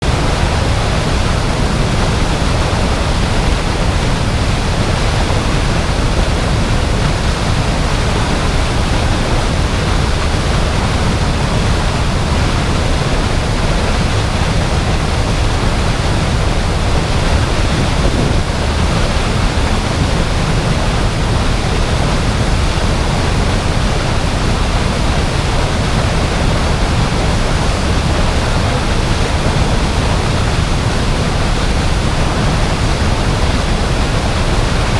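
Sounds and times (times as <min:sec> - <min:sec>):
waterfall roaring: 0:00.0 - 0:34.9.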